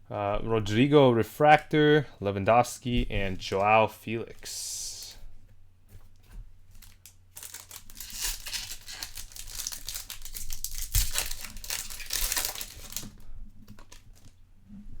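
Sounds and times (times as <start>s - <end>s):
foil wrapper tearing and crinkling: 6.7s - 14.4s.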